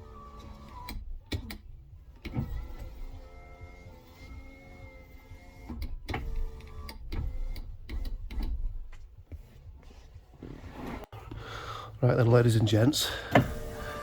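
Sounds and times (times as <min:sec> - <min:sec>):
electric window motor whine: 0:00.0 - 0:09.8, 0:13.1 - 0:14.0
knocks and clicks: 0:00.4 - 0:03.2, 0:05.4 - 0:09.5.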